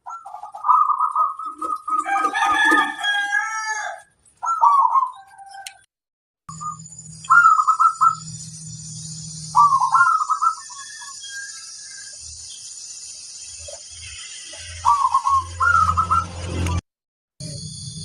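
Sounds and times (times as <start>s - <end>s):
doves cooing: 0.0s - 5.6s, 7.3s - 8.3s, 9.6s - 11.4s, 14.8s - 16.4s
rooster crowing: 1.9s - 4.2s, 10.5s - 12.2s.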